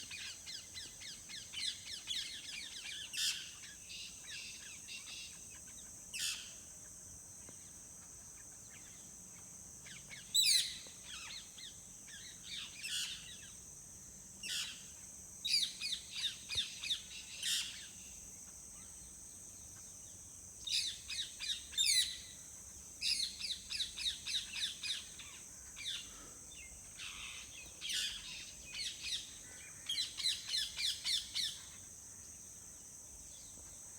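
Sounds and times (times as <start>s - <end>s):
songbirds chirping and trilling: 7.4s - 33.9s.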